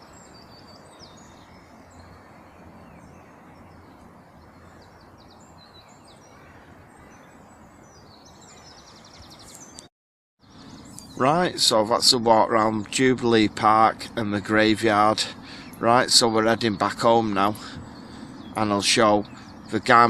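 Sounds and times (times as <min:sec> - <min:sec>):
outdoor background hiss: 0:00.0 - 0:09.8, 0:10.4 - 0:20.0
bird trill: 0:00.0 - 0:20.0
songbirds chirping and singing: 0:00.0 - 0:20.0.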